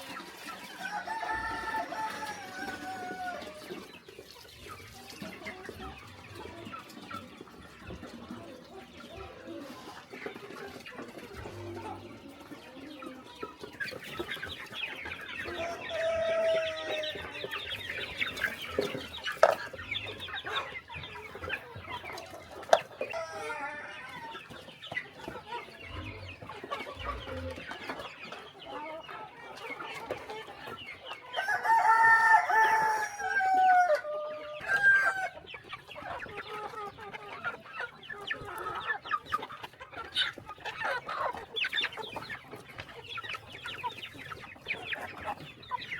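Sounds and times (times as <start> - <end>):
chickens clucking: 0.0 - 45.9
rooster crowing: 0.8 - 3.4, 31.4 - 35.4.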